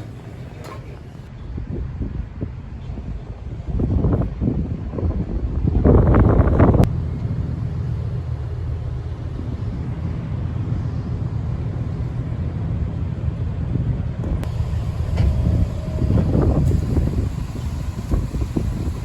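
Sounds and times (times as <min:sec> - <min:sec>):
ship engines droning: 0:00.0 - 0:01.3, 0:14.4 - 0:19.0
faint wind and water hiss: 0:14.4 - 0:19.0.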